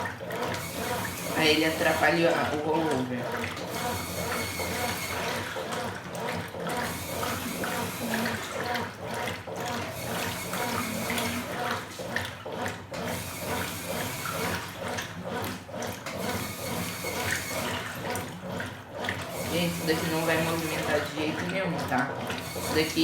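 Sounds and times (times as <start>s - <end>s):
low motor hum: 0.0s - 12.5s
water sloshing in washing machine: 0.0s - 23.0s.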